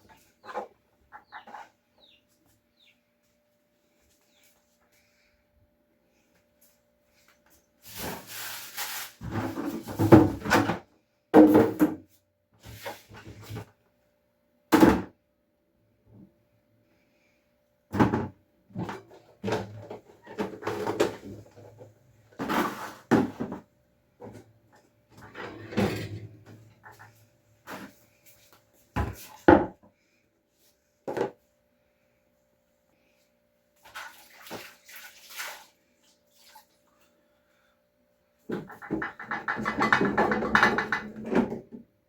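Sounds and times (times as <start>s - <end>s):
containers knocking and clattering: 38.5s - 41.8s.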